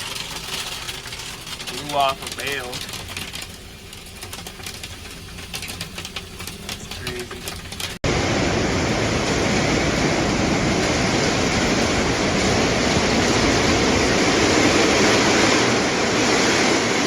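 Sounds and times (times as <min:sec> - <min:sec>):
hail pelting down: 0:00.0 - 0:17.0
strong wind: 0:08.0 - 0:17.0.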